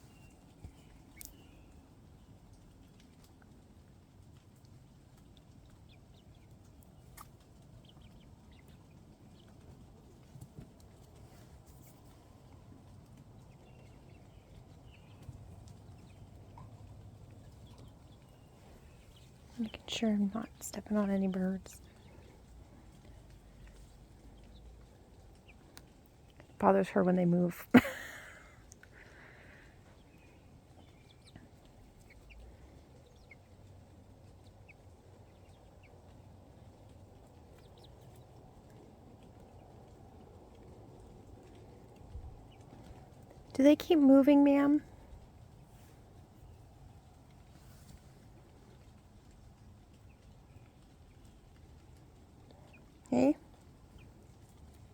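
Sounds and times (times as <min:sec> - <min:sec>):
low steady background hush: 0:00.0 - 0:54.9
chickens chirping: 0:05.2 - 0:26.4, 0:27.8 - 0:43.3.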